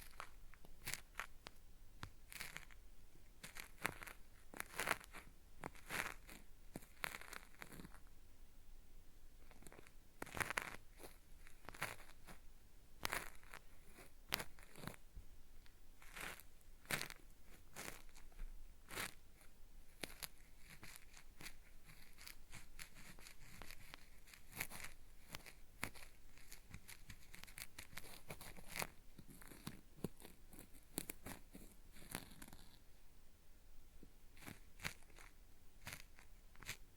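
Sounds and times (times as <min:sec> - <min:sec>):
cotton swab scratching microphone: 0:00.0 - 0:02.8, 0:03.4 - 0:08.1, 0:09.4 - 0:15.0, 0:16.0 - 0:32.9, 0:34.3 - 0:36.9.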